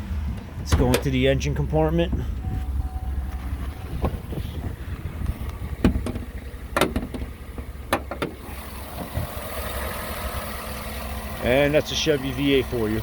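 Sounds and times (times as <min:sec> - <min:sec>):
car engine idling: 0:00.0 - 0:13.0
sharp clicks and knocks: 0:05.2 - 0:08.4.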